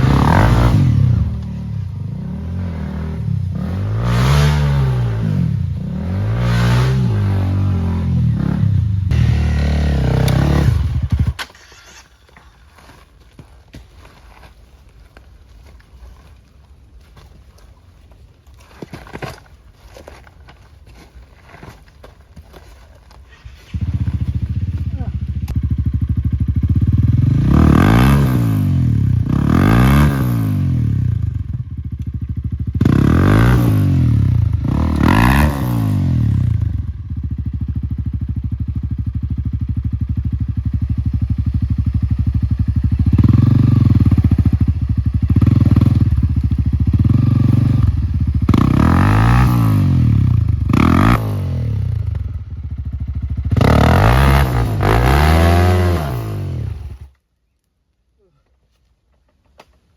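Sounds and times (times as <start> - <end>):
motorcycle engine revving: 0.0 - 12.0, 23.3 - 57.2.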